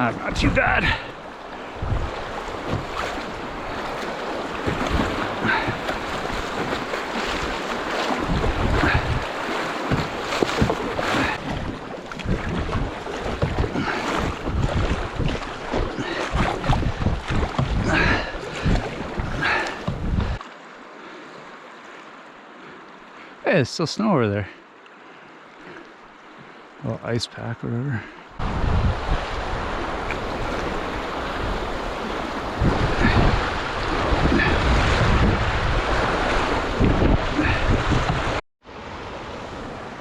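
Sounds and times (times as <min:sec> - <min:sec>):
wind buffeting microphone: 0:00.0 - 0:20.4, 0:28.4 - 0:38.4
kayak splashes: 0:00.0 - 0:26.8, 0:28.4 - 0:40.0
river water flowing: 0:00.0 - 0:40.0.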